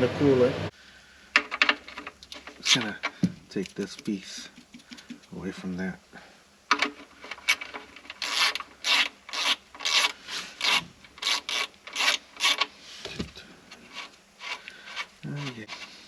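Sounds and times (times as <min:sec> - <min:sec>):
rubbing or scraping strokes: 0:07.2 - 0:16.0.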